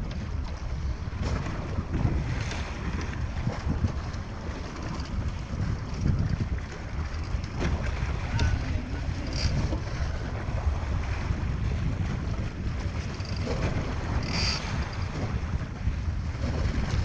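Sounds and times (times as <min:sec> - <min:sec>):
wind rumbling on microphone: 0:00.0 - 0:17.0
short high squeaks: 0:14.2 - 0:15.1.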